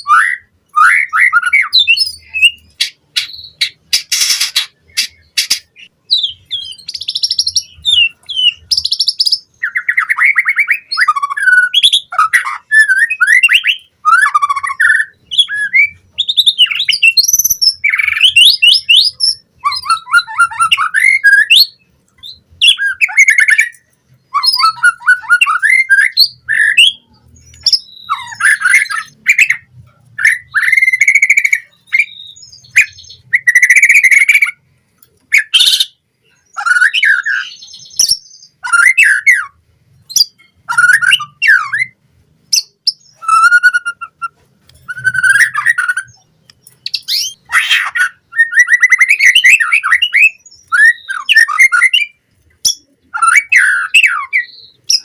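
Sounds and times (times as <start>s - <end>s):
bird singing whistles and warbles: 0.0s - 55.0s
sharp clicking bird notes: 2.6s - 5.8s.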